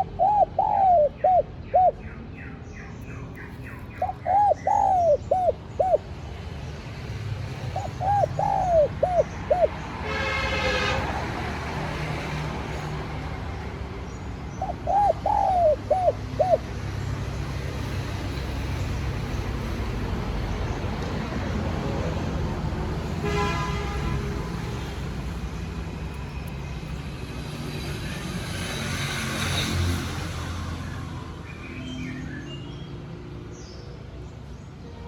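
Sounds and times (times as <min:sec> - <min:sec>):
dove cooing: 0:00.0 - 0:02.1, 0:03.9 - 0:06.1, 0:07.6 - 0:09.9, 0:14.5 - 0:16.8.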